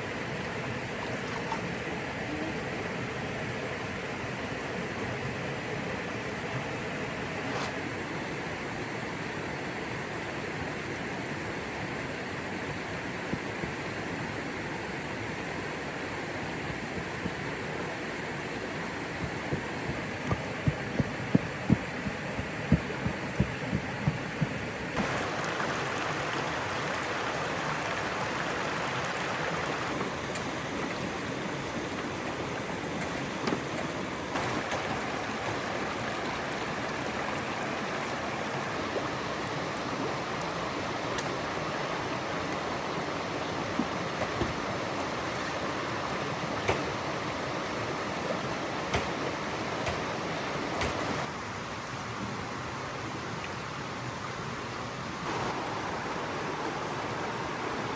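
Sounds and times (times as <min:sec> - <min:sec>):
flowing water rushing: 0:00.0 - 0:57.9
dull thumps: 0:19.1 - 0:26.4, 0:43.7 - 0:44.8.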